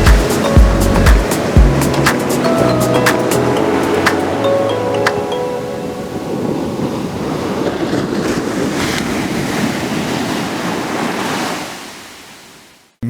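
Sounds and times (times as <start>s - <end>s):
sea waves washing in: 0.0s - 13.0s.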